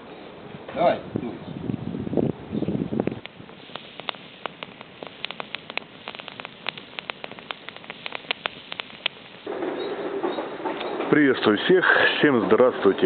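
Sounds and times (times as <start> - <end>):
faint steady hiss: 0.0 - 13.0
sharp crackling pops: 3.0 - 11.2.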